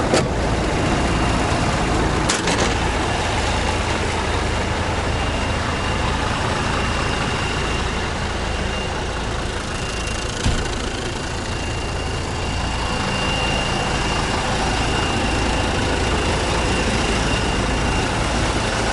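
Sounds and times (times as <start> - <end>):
truck diesel engine idling: 0.0 - 18.9
faint high whine: 0.3 - 18.9.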